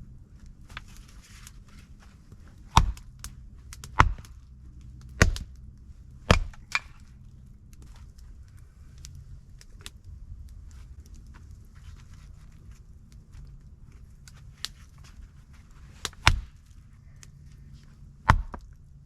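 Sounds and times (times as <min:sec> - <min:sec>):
axe chopping wood: 0:02.6 - 0:04.4, 0:05.0 - 0:05.6, 0:06.2 - 0:07.0, 0:16.0 - 0:16.6, 0:18.2 - 0:18.7.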